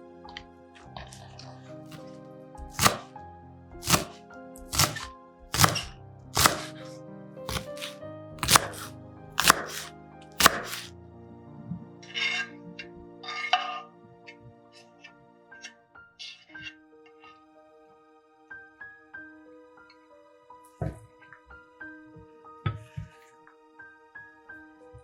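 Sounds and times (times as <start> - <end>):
background music: 0.0 - 25.0
knife chopping on cutting board: 2.6 - 3.1, 3.8 - 6.8, 7.5 - 10.9.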